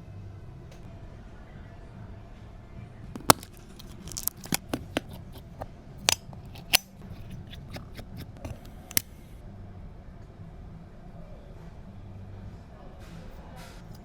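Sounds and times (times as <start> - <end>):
repair tools clicking on laptop: 3.2 - 9.1.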